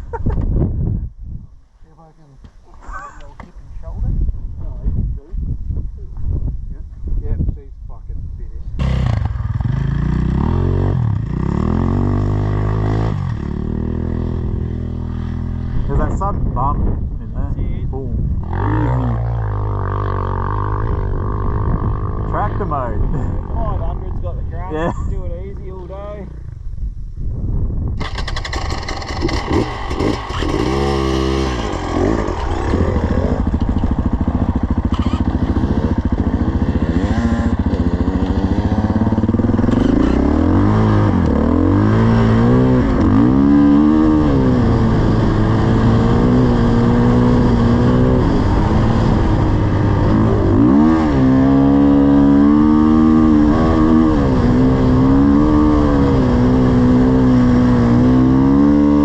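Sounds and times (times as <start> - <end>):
dirt bike engine revving: 8.8 - 16.0, 18.4 - 24.2, 28.0 - 59.0.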